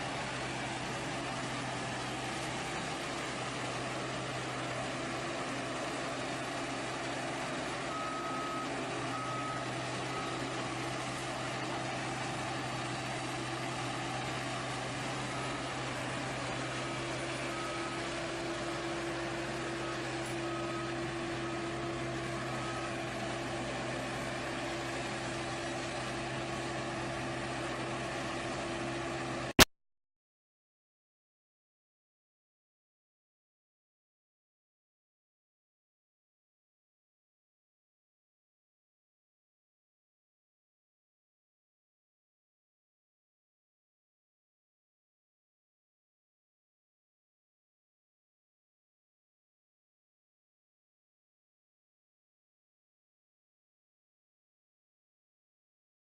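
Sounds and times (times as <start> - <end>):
heavy construction machine running: 0.0 - 29.6
reversing alarm beeps: 0.3 - 26.4.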